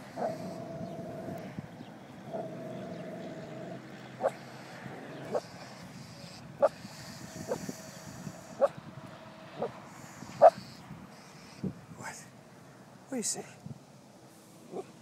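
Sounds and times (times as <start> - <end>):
dog barking: 10.4 - 10.6.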